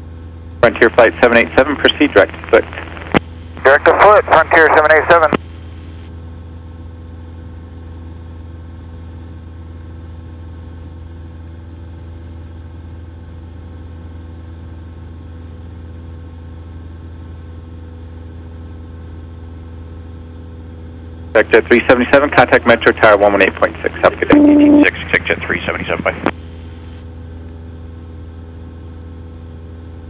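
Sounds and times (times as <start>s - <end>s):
airplane engine droning: 0.3s - 6.0s, 19.2s - 30.0s.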